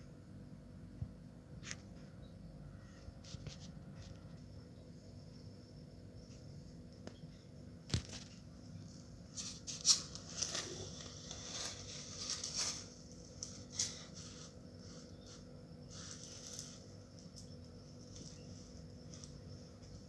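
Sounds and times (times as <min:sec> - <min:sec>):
rustling and scratching: 0:07.9 - 0:20.0.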